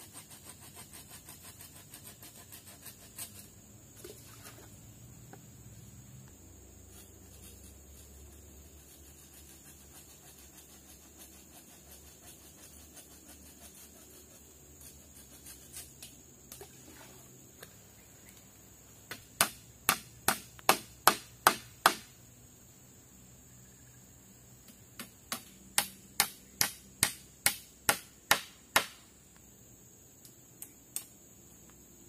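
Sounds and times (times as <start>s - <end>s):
sharp knocks: 19.1s - 22.1s, 25.0s - 29.0s.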